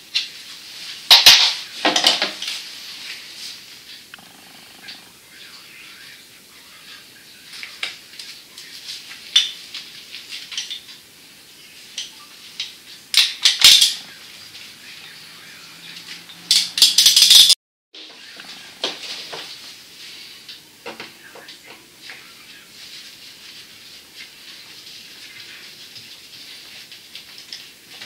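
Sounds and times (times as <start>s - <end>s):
loud rattling flurries: 1.3s - 6.1s.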